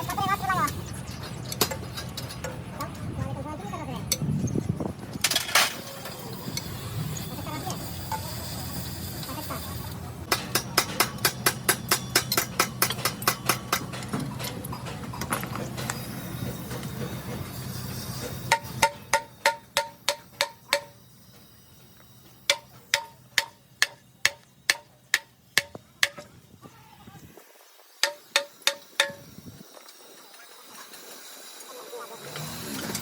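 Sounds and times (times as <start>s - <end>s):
hammer striking metal: 10.2s - 26.3s, 28.0s - 29.3s.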